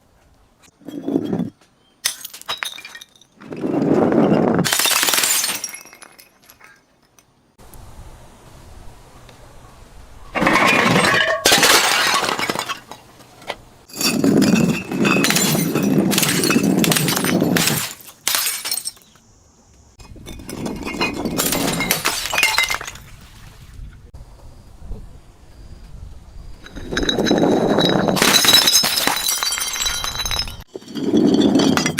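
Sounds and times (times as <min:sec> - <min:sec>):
glass bottles smashing: 0:01.0 - 0:03.4, 0:04.6 - 0:07.2, 0:10.4 - 0:13.0, 0:13.9 - 0:19.1, 0:20.0 - 0:23.2, 0:26.7 - 0:31.9.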